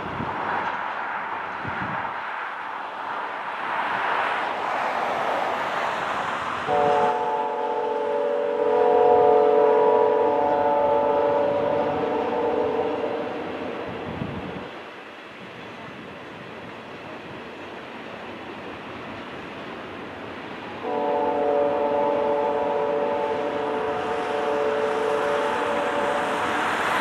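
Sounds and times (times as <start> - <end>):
freight train rolling past: 0.0 - 27.0
locomotive horn chord: 6.7 - 13.8, 20.8 - 26.7.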